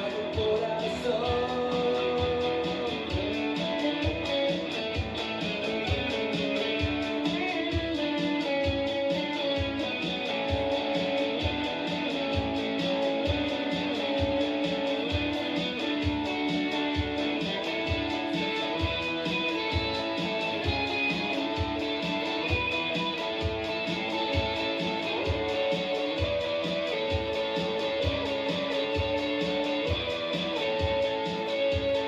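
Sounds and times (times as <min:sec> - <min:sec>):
steady low beat: 0:00.0 - 0:32.0
strummed electric guitar: 0:00.0 - 0:32.0.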